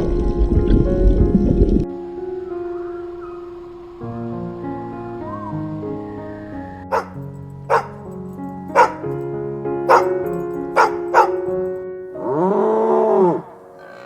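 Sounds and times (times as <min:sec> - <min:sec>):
soft background music: 0:00.0 - 0:14.0
dog barking: 0:06.9 - 0:09.2, 0:09.9 - 0:11.6.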